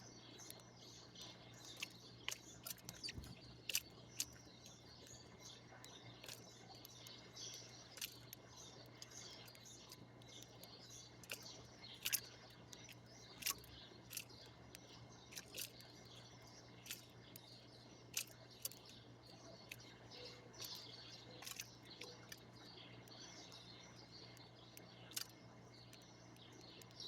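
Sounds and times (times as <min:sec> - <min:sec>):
small birds chirping: 0:00.0 - 0:27.0
sharp clicks: 0:24.4 - 0:27.0.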